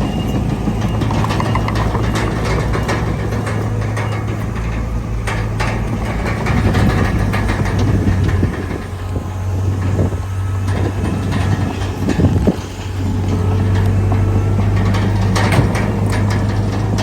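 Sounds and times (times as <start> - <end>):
bulldozer diesel engine running: 0.0 - 17.0
knocks and clanks: 0.3 - 8.8, 14.1 - 17.0.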